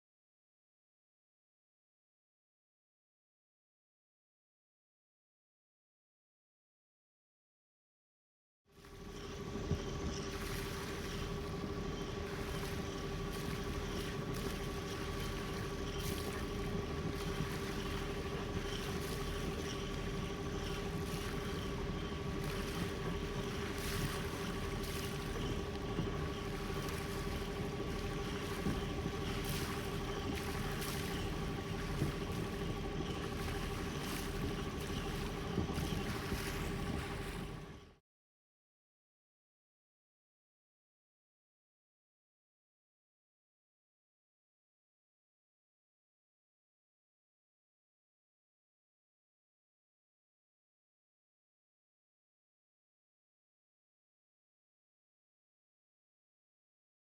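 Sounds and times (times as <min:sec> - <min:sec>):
boat engine hum: 0:08.8 - 0:38.0.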